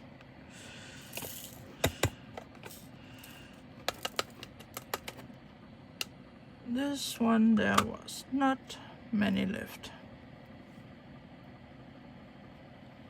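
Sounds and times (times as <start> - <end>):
plastic containers clicking: 3.8 - 5.2.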